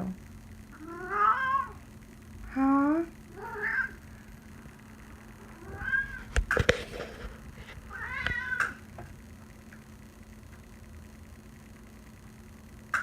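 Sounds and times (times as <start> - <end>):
cat meowing: 0.8 - 1.8, 3.4 - 4.0, 5.6 - 6.2, 7.9 - 8.8.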